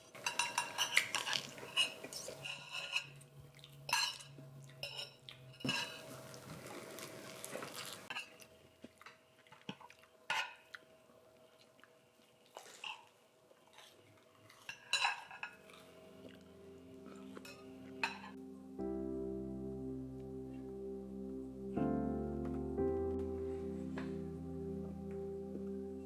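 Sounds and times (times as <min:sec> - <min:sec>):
dishes and cutlery clinking: 0:00.0 - 0:03.3, 0:03.9 - 0:06.4, 0:10.3 - 0:10.7, 0:14.6 - 0:15.9, 0:17.1 - 0:18.4.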